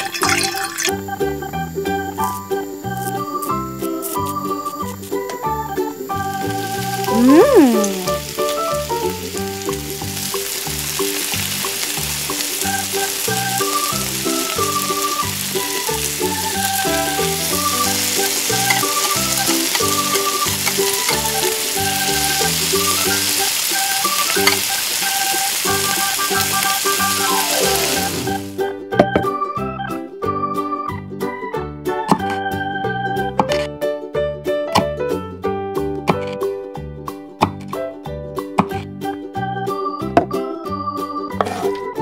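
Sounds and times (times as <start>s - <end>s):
food sizzling in hot oil: 0.0s - 28.7s
cheerful background music: 0.2s - 42.0s
downward pitch glide: 7.0s - 8.3s.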